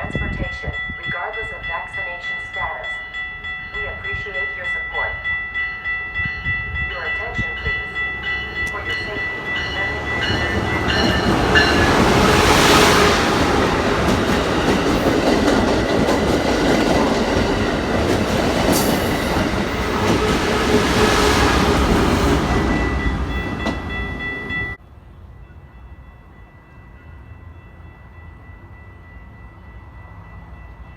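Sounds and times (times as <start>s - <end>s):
train rumbling on rails: 0.0s - 30.9s
high ringing tone: 22.7s - 24.8s.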